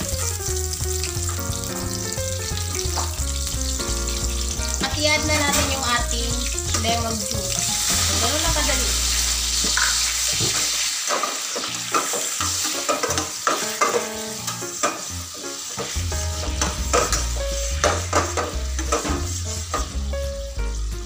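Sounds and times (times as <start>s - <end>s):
sauce sizzling in a frying pan: 0.0s - 21.0s
spatula scraping and tapping pan: 9.6s - 14.2s, 15.8s - 20.0s.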